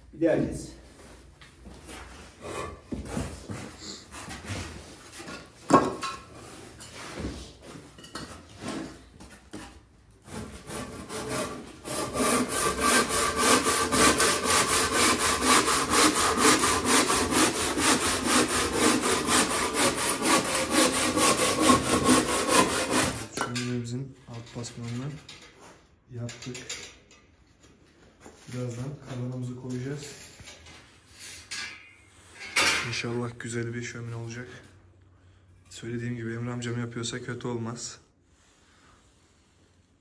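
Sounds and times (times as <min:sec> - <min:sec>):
hand saw cutting: 0:10.2 - 0:23.4.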